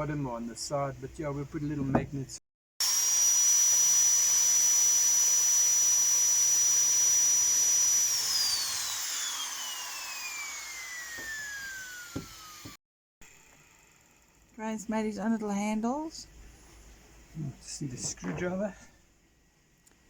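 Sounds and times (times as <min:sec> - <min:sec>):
power tool whining: 0:02.8 - 0:12.8.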